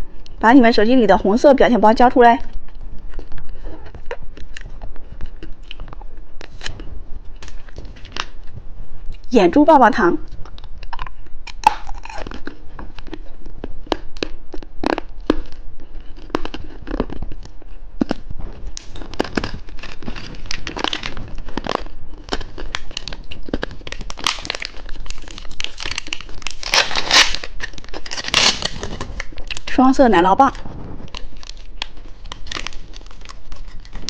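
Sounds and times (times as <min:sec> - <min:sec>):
plastic wrappers crinkling: 0:10.5 - 0:34.0.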